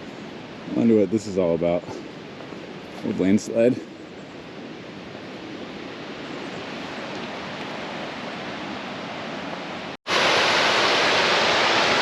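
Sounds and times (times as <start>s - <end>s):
rushing creek water: 6.0s - 12.0s
small waterfall rushing: 6.1s - 12.0s.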